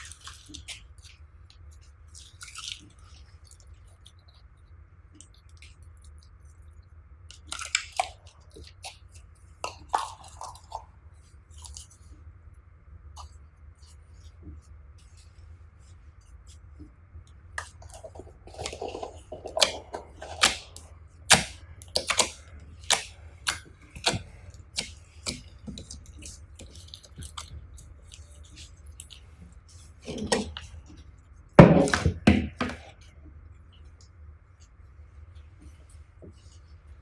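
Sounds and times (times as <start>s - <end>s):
slime squelching by hand: 0.0s - 4.6s, 7.3s - 12.2s, 13.2s - 33.2s.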